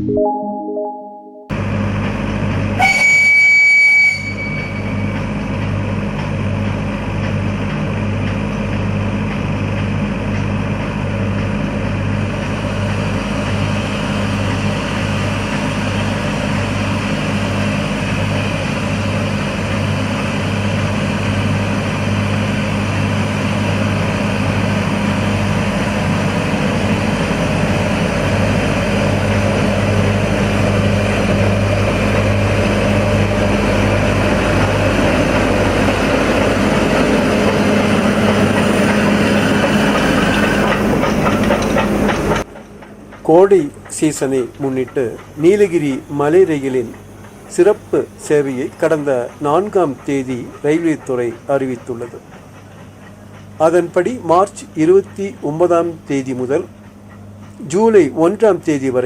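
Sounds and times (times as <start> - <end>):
train running with rhythmic pulse: 1.6 - 59.0
train whistle blast: 2.8 - 5.2.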